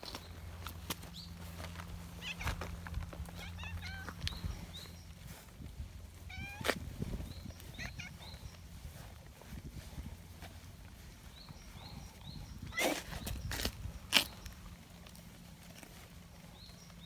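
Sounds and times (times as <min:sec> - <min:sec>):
cat meowing: 0:02.2 - 0:02.6, 0:03.4 - 0:04.2, 0:06.3 - 0:06.7, 0:07.7 - 0:08.4.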